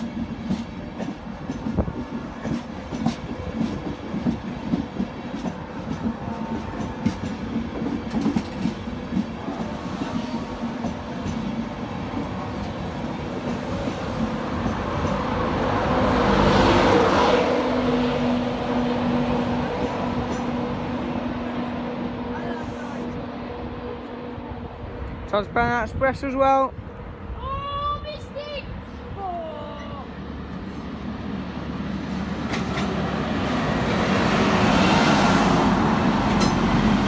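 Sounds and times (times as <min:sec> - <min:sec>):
wheels clicking over rail joints: 0:00.0 - 0:09.8, 0:32.1 - 0:33.8, 0:36.2 - 0:37.0
locomotive passing: 0:00.0 - 0:37.0.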